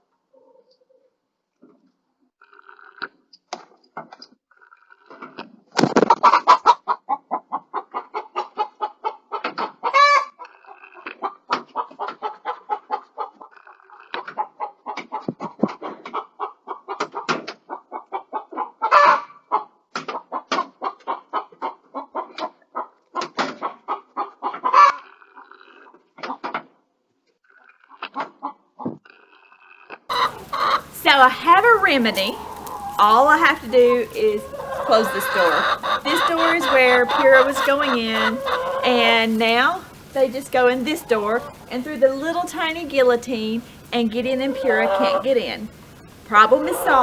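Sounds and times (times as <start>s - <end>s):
hen squawking: 30.1s - 47.0s
hens clucking: 30.1s - 47.0s.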